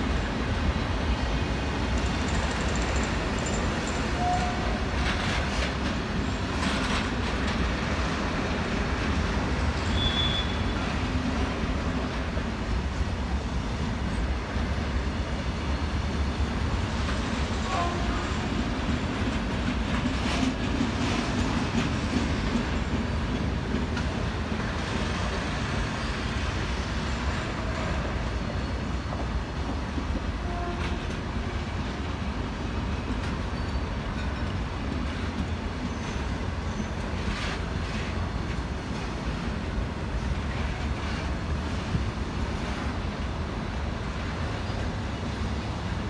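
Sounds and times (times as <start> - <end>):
freight train rumbling past: 0.0 - 46.0
wheels clicking on rails: 1.8 - 10.0.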